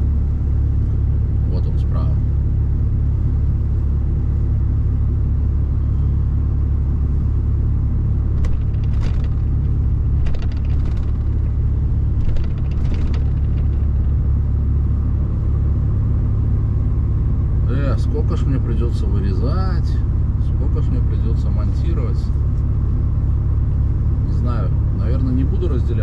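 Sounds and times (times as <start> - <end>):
truck diesel engine rumbling: 0.0 - 26.0
truck knocks and rattles: 8.2 - 14.7.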